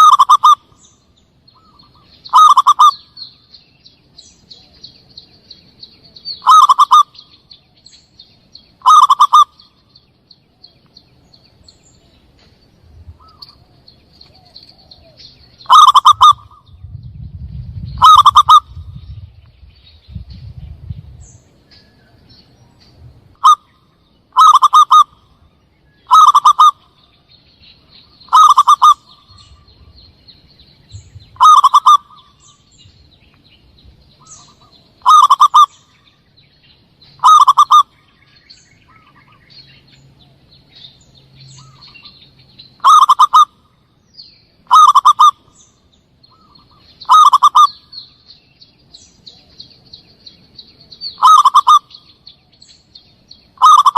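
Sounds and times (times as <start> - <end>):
dove cooing calls: 0.0 - 0.9, 1.6 - 3.4, 6.2 - 7.4, 8.8 - 9.8, 13.0 - 17.0, 17.7 - 19.2, 23.3 - 25.4, 26.0 - 27.0, 28.0 - 30.0, 30.9 - 32.8, 34.1 - 36.2, 37.2 - 38.0, 42.8 - 43.7, 44.6 - 45.7, 46.3 - 48.1, 51.0 - 52.2, 53.6 - 53.9.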